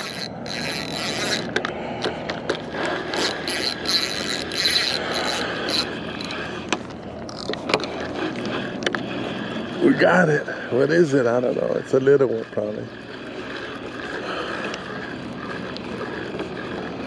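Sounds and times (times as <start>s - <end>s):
fishing reel gears clicking and whirring: 0.0s - 17.0s.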